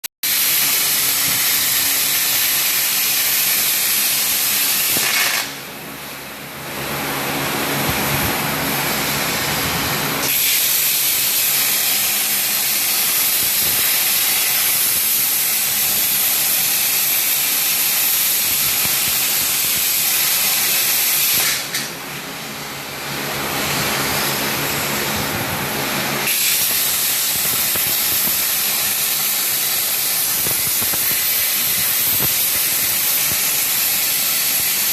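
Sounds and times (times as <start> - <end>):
cnc machine hissing: 23.4 - 34.9.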